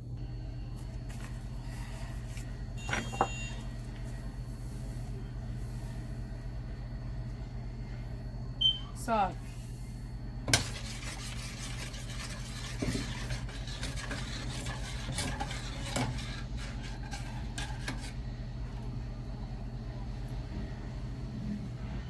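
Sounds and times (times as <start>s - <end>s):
steady low hum: 0.0s - 22.0s
spoon stirring and scraping pot: 10.5s - 18.2s.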